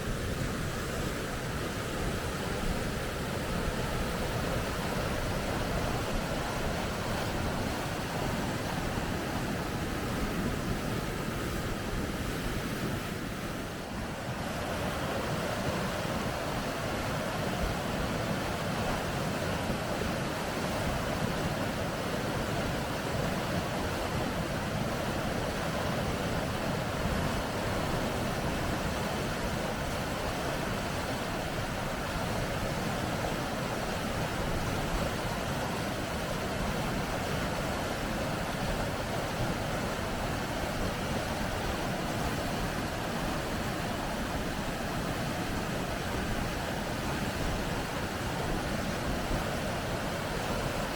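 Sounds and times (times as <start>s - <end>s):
water rushing over rapids: 0.0s - 50.9s.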